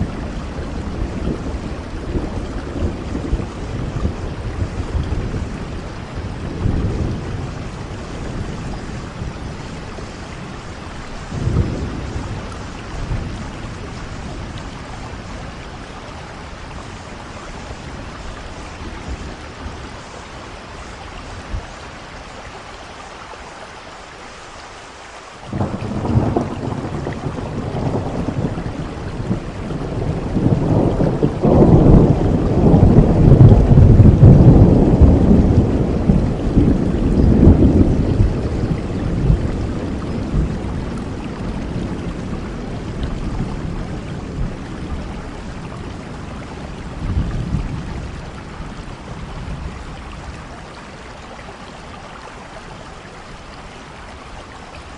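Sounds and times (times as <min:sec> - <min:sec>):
thunder rolling: 0:00.0 - 0:16.9, 0:25.5 - 0:50.4
steady rain: 0:00.0 - 0:54.9.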